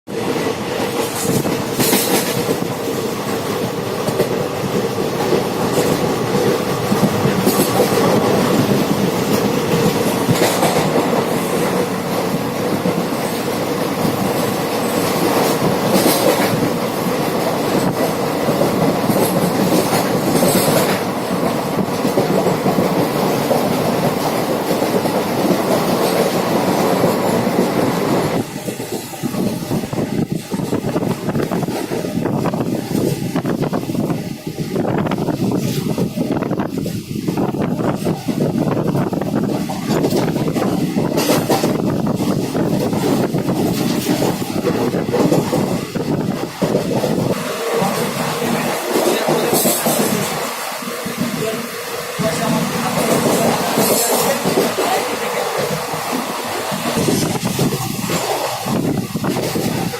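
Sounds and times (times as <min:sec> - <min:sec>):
train rumbling on rails: 0:00.1 - 0:59.9.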